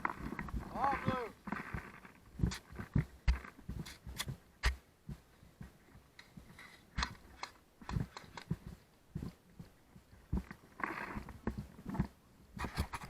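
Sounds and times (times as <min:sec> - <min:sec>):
rattle of carried gear: 0:00.0 - 0:04.4
footsteps: 0:00.0 - 0:13.0.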